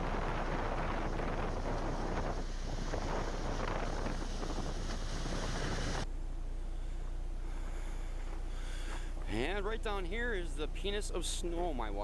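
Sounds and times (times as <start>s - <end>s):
wind on microphone: 0.0s - 6.0s.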